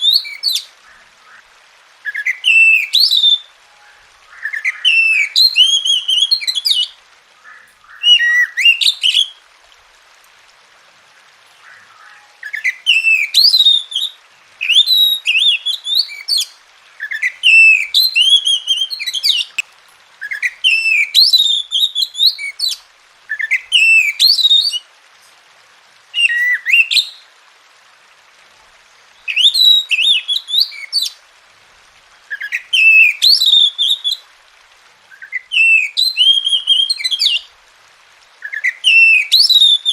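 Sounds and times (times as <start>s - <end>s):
bird whistled song: 0.0s - 1.4s, 2.0s - 9.4s, 11.6s - 19.6s, 20.2s - 24.8s, 26.2s - 27.2s, 29.2s - 31.2s, 32.3s - 34.2s, 35.1s - 37.5s, 38.4s - 39.9s.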